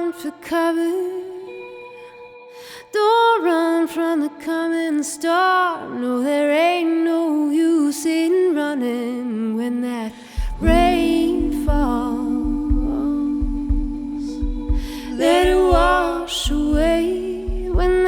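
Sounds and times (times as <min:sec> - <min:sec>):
woman singing slow melody: 0:00.0 - 0:18.0
deep bass: 0:10.4 - 0:18.0.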